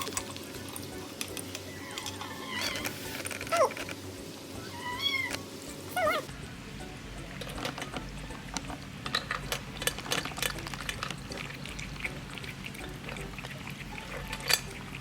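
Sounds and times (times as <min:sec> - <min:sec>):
cat chewing wet food: 0:07.3 - 0:15.0.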